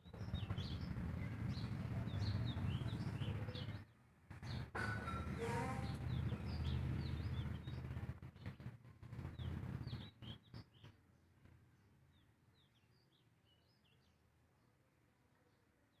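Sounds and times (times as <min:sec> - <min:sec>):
small birds chirping: 0:00.0 - 0:14.4
loud low rumble with clicks: 0:04.3 - 0:10.7.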